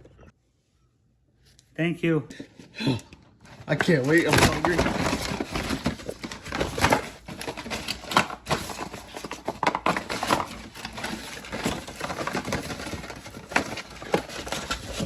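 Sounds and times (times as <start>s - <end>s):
rustling of unwrapping: 3.4s - 15.0s.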